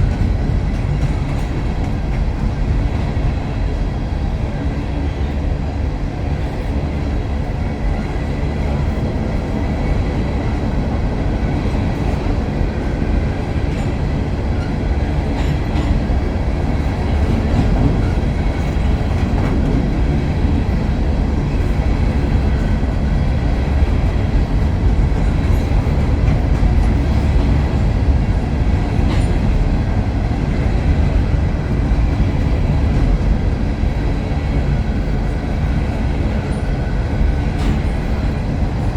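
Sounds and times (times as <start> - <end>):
freight train rumbling past: 0.0 - 38.9
train wheel clicks: 11.5 - 20.8.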